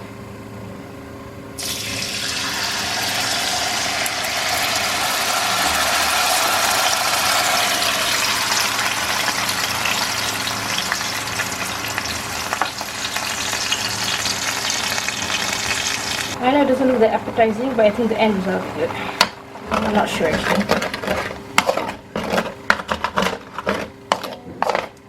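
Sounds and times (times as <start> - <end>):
liquid sizzling in frying pan: 1.6 - 16.4.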